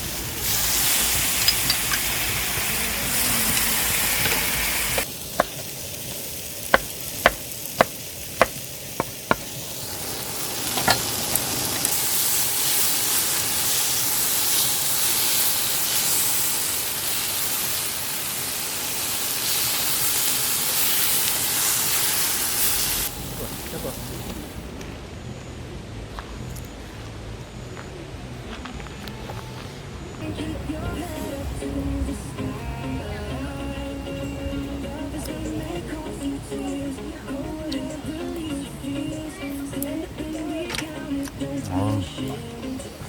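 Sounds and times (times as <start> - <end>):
food sizzling in a pan: 0.0 - 24.6.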